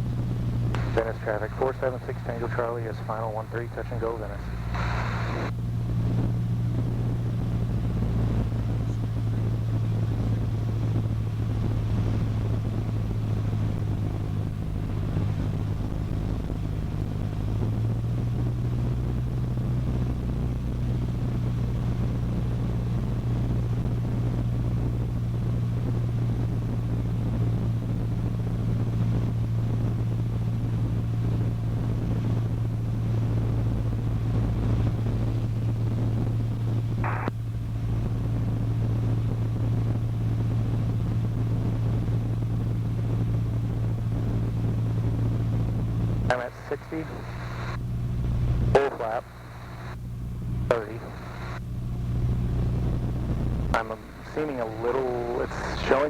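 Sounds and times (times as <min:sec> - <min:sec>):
airplane engine and propeller droning: 0:00.0 - 0:56.0.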